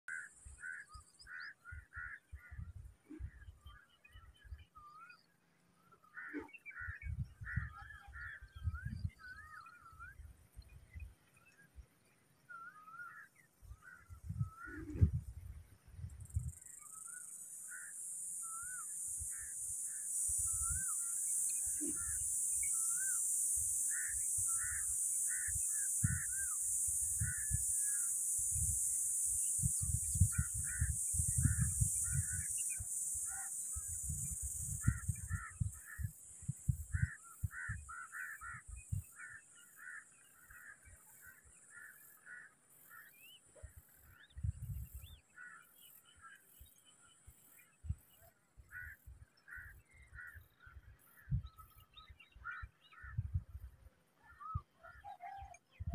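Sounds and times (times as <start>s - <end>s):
bird calls: 0.1s - 15.3s, 16.2s - 53.5s, 54.2s - 55.9s
steady high hiss: 16.8s - 42.3s.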